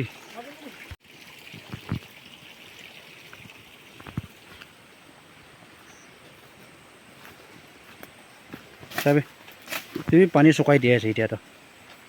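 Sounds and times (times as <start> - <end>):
shallow water trickling: 0.0 - 6.0.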